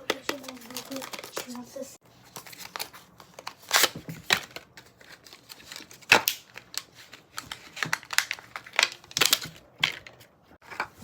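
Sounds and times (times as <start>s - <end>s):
packaging crinkling and tearing: 0.2s - 1.7s, 2.3s - 10.1s.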